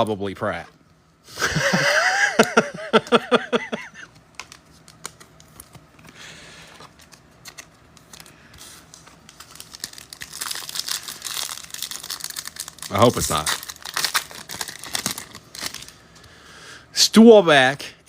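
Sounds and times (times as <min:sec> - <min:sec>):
foil wrapper crinkling: 0:04.3 - 0:16.2.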